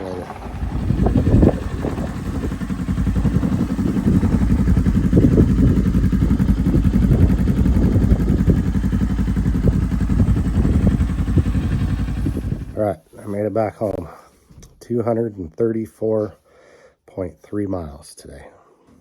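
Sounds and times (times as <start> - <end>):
wind rushing over microphone: 0.0 - 12.8
motorcycle engine running: 0.0 - 13.0.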